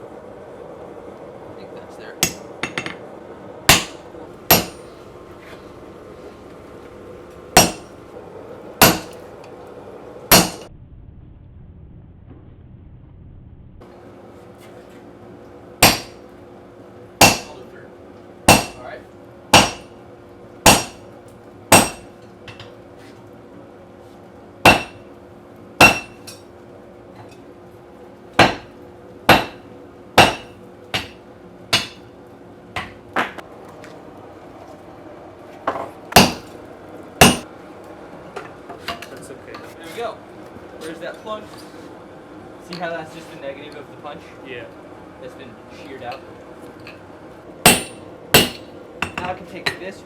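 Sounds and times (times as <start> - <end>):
steady low hum: 0.0 - 50.0
hammer striking steel punch: 2.2 - 3.0, 3.7 - 4.9, 7.6 - 8.0, 8.8 - 9.2, 10.3 - 10.7, 15.8 - 16.2, 17.2 - 17.6, 18.5 - 18.8, 19.6 - 20.0, 20.7 - 21.0, 21.7 - 22.7, 24.7 - 25.0, 25.8 - 26.4, 28.4 - 32.1, 32.8 - 33.4, 36.2 - 36.5, 37.2 - 37.4, 47.7 - 49.8.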